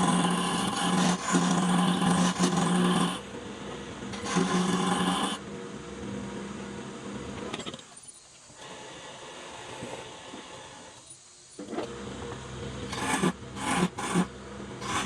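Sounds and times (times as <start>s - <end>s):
power tool motor whine: 0.0s - 7.7s, 8.6s - 15.0s
power tool running: 0.0s - 7.8s, 11.6s - 15.0s.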